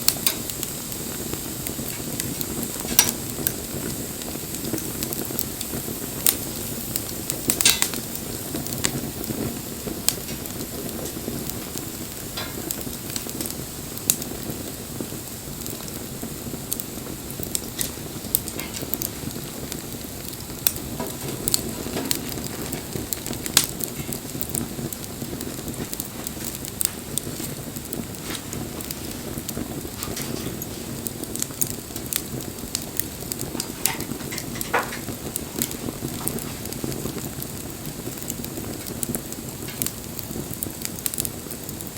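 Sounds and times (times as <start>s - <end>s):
wood fire crackling and popping: 0.0s - 41.9s.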